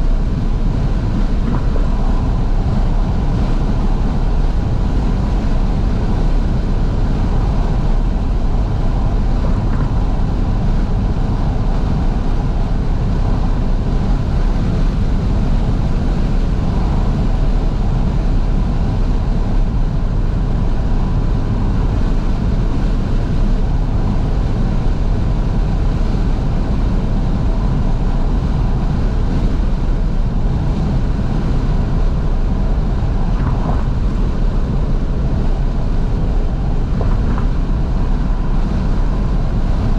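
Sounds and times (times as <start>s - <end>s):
car engine running: 0.0s - 39.9s
road noise: 0.0s - 39.9s
wind rush in car cabin: 0.0s - 39.9s.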